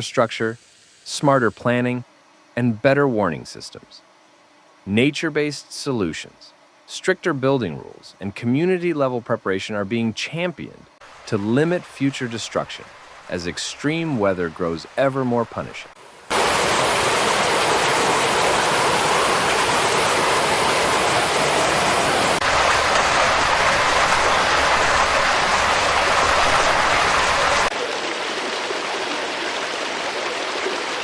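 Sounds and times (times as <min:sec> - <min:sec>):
floodwater rushing: 0:11.0 - 0:31.0.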